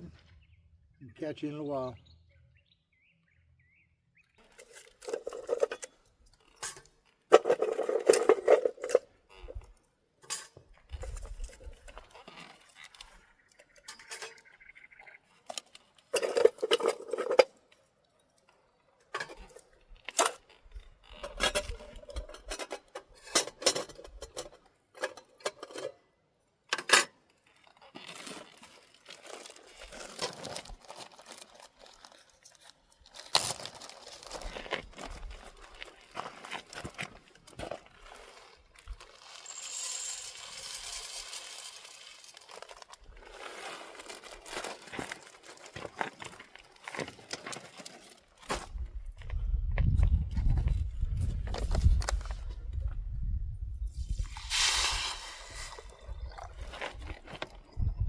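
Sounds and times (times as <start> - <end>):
camp cookware clattering: 4.4 - 13.1, 13.7 - 14.6, 15.5 - 31.2.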